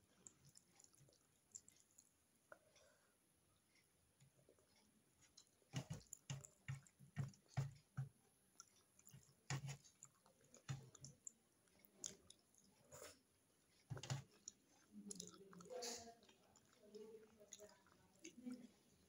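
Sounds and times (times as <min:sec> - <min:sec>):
person chewing with wet mouth clicks: 0:00.1 - 0:02.8, 0:08.5 - 0:13.2, 0:13.9 - 0:18.7.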